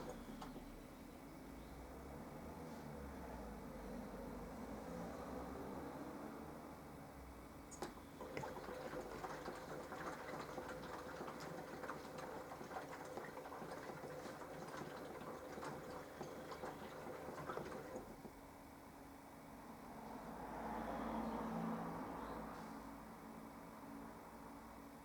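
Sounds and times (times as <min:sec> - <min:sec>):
water and laundry sloshing: 0:00.0 - 0:00.7, 0:07.7 - 0:18.4
washing machine motor humming: 0:00.0 - 0:00.8, 0:07.6 - 0:18.5.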